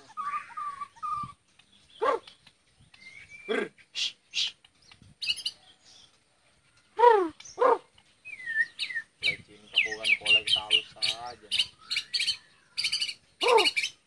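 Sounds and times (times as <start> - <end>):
high whistled bird notes: 7.0 - 14.0.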